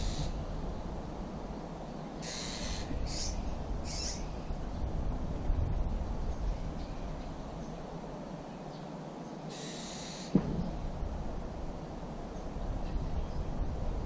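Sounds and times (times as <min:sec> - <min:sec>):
bird calling harshly: 0:00.0 - 0:00.4, 0:02.2 - 0:04.3, 0:09.5 - 0:10.3
wind rumble on microphone: 0:00.0 - 0:08.4, 0:10.3 - 0:14.0.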